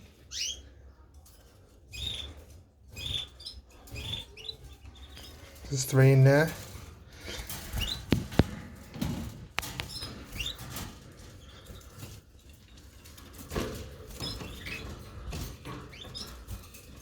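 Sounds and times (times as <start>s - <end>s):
canaries chirping: 0.0s - 17.0s
sharp clicks and knocks: 7.7s - 10.9s.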